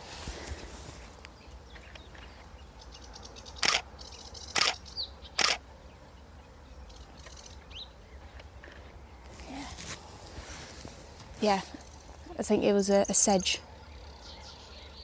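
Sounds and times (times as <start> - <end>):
camera shutter firing: 3.6 - 3.9, 4.5 - 4.8, 5.4 - 5.6.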